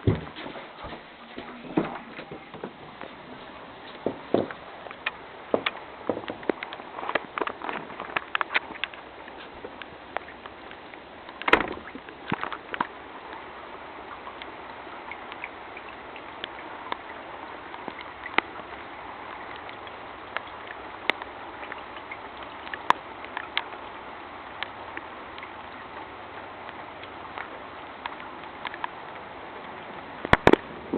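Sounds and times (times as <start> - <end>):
floodwater rushing: 0.0 - 30.9
sharp knocks: 4.0 - 4.6, 11.5 - 12.0.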